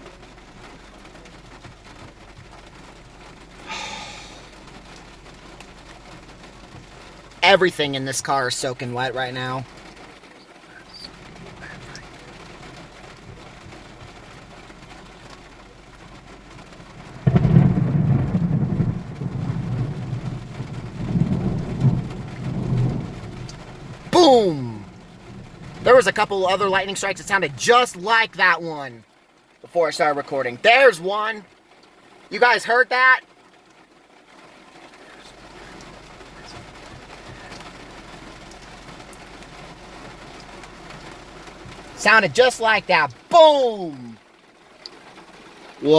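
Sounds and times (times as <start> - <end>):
heavy rain on a car: 0.0 - 45.9
thunder boom and rumble: 17.1 - 24.1.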